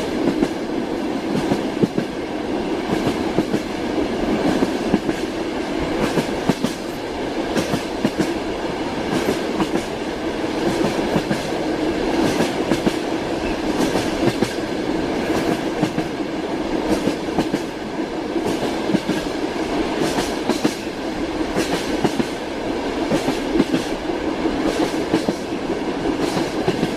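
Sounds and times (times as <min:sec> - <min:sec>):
train wheels clacking: 0:00.0 - 0:02.2, 0:02.8 - 0:26.9
steady train running noise: 0:00.0 - 0:26.9.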